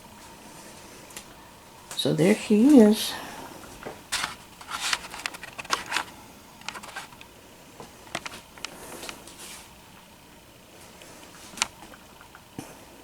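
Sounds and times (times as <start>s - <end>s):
handling clicks and rustles: 3.9s - 7.3s.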